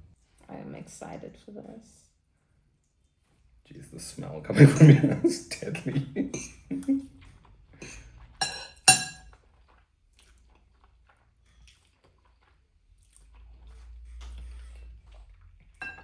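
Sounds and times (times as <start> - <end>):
soft chewing: 2.2 - 4.0, 4.7 - 16.0
cutlery clinking against bowl: 7.8 - 9.3, 15.8 - 16.0.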